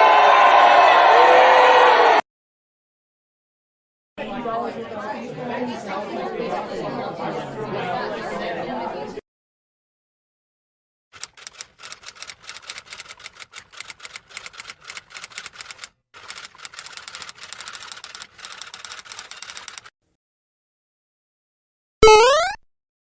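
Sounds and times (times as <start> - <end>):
rapid keyboard typing: 11.2 - 19.9.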